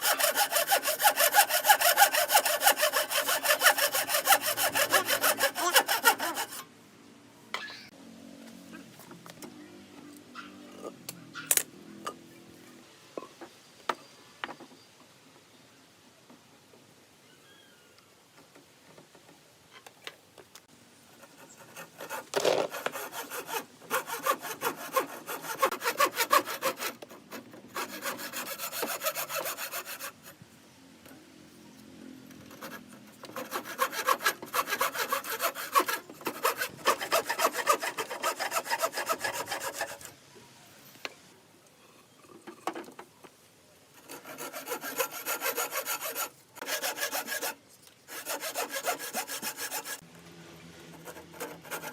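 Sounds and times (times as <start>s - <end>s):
hand saw cutting wood: 0.0s - 6.6s, 21.2s - 30.4s, 32.4s - 40.1s, 44.0s - 50.1s, 50.9s - 51.9s.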